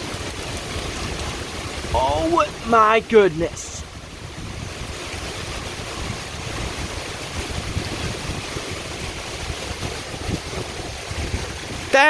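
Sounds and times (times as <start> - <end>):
heavy rain pouring: 0.0 - 12.0
wind buffeting microphone: 3.8 - 12.0.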